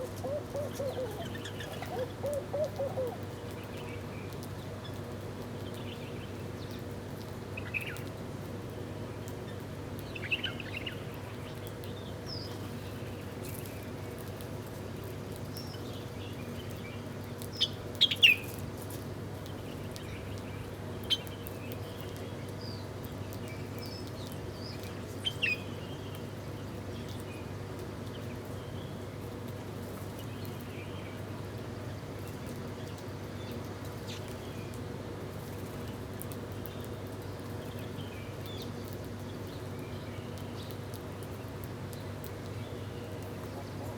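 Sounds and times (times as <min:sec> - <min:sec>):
small birds chirping: 0:00.0 - 0:03.9.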